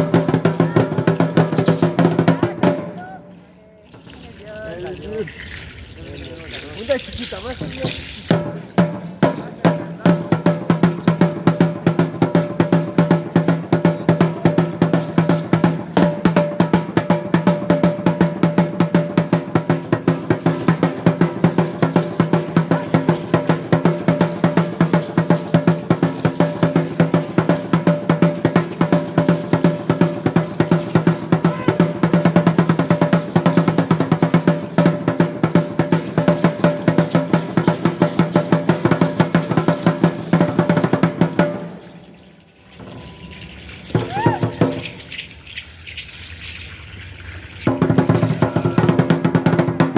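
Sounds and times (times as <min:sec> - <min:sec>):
deep drum beaten fast: 0:47.7 - 0:49.9.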